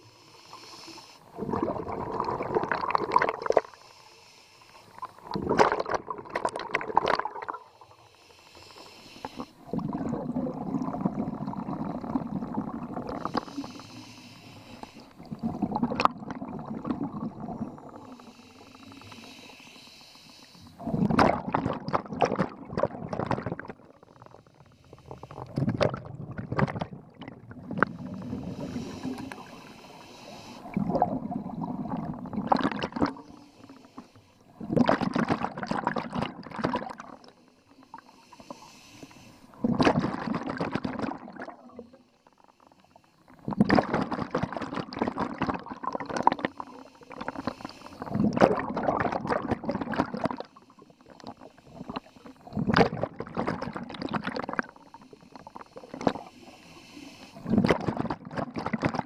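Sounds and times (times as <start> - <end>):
regulator inhalation hiss: 0.0 - 1.3, 3.6 - 5.2, 7.6 - 9.7, 13.2 - 15.2, 18.0 - 20.8, 27.9 - 30.8, 33.2 - 34.4, 37.3 - 39.6, 46.5 - 48.2, 50.5 - 52.6, 54.7 - 57.5
exhaled bubbles gurgling: 1.2 - 3.8, 4.9 - 19.5, 20.4 - 38.6, 39.5 - 59.0.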